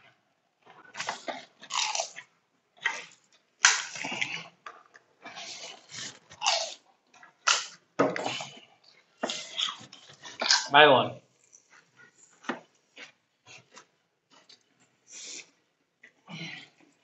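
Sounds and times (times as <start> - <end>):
crisp shells crunching while chewing: 1.1 - 2.2, 5.4 - 7.7.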